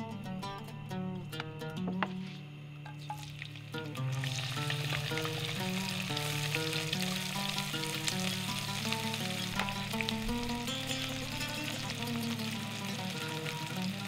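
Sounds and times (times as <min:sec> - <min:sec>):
plucked background music: 0:00.0 - 0:14.0
food sizzling in hot oil: 0:03.0 - 0:14.0.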